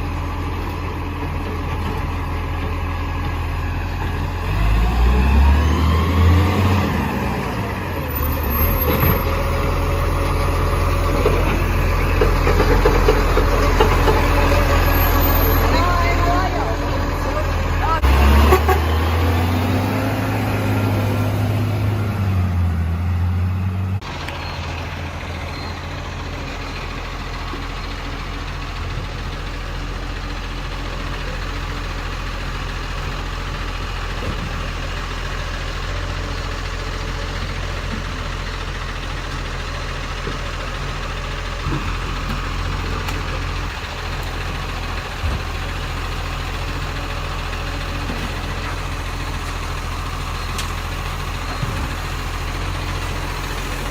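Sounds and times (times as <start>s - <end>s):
engine with wavering pitch: 0.0s - 28.0s, 48.0s - 53.9s
garbage truck engine idling: 0.0s - 53.9s.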